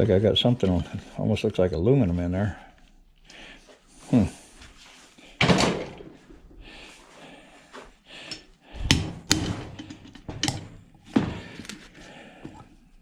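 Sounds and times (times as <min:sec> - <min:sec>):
metal knocks and clanks: 0:08.8 - 0:11.4.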